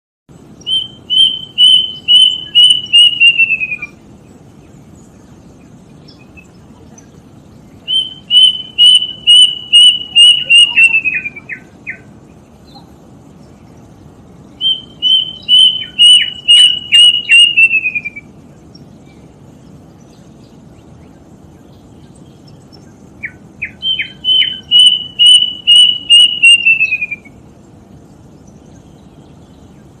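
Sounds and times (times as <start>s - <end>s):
bird singing high notes: 0.6s - 4.0s, 7.8s - 12.9s, 14.5s - 18.4s, 23.2s - 27.4s.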